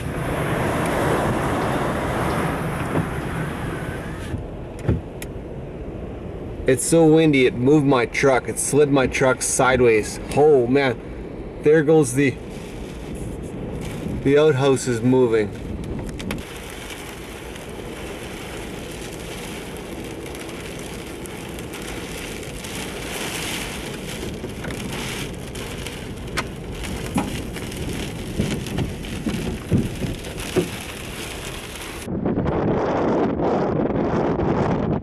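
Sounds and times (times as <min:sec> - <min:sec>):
heavy rain beating on truck: 0:00.0 - 0:04.4, 0:12.0 - 0:32.1
wind buffeting microphone: 0:00.0 - 0:07.6, 0:10.0 - 0:35.0.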